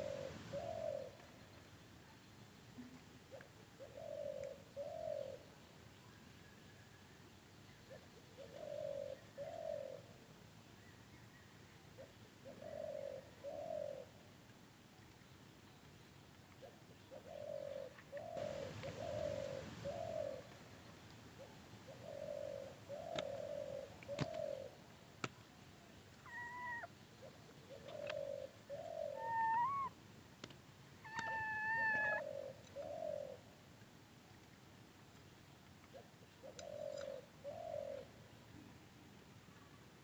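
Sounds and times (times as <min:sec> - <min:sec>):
dove cooing: 0:00.0 - 0:01.4, 0:03.3 - 0:05.6, 0:07.9 - 0:10.2, 0:12.0 - 0:14.3, 0:16.6 - 0:24.9, 0:26.2 - 0:30.0, 0:31.0 - 0:33.6, 0:35.9 - 0:38.2
higher drawn-out bird calls: 0:26.2 - 0:30.0, 0:31.0 - 0:33.5.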